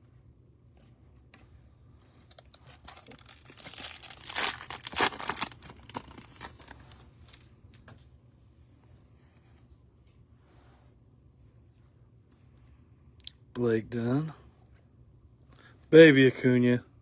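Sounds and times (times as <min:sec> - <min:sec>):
wrapper crinkling and rustling: 0:02.2 - 0:07.9
foil wrapper tearing: 0:02.3 - 0:07.5.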